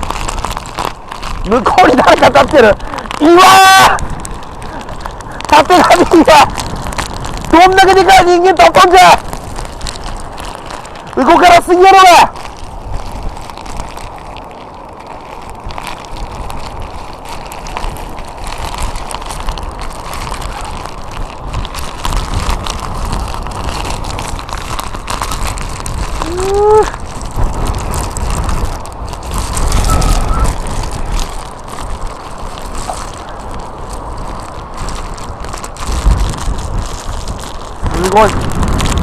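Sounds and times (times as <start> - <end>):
wind buffeting microphone: 0.0 - 39.0
person exclaiming: 1.5 - 4.1, 5.5 - 6.5, 7.5 - 9.2, 11.2 - 12.3, 26.2 - 27.0.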